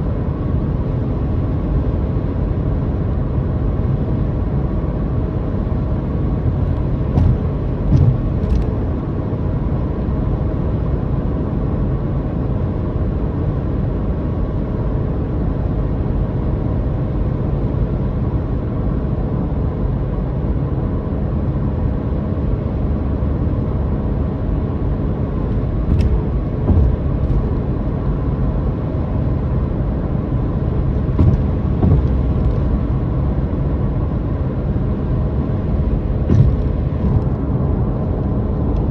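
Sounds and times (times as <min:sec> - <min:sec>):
road rumble: 0:03.8 - 0:10.5, 0:22.6 - 0:38.9
car engine drone: 0:06.4 - 0:09.4, 0:25.4 - 0:28.4, 0:30.6 - 0:38.6
brief knocks: 0:06.6 - 0:09.0, 0:25.6 - 0:27.7, 0:31.2 - 0:32.9, 0:36.3 - 0:37.5.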